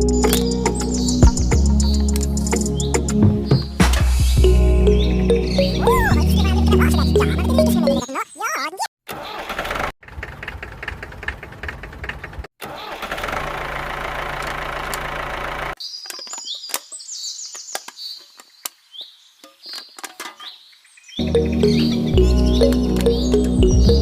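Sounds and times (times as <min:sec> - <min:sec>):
birds chirping: 0:00.0 - 0:08.8, 0:15.8 - 0:24.0.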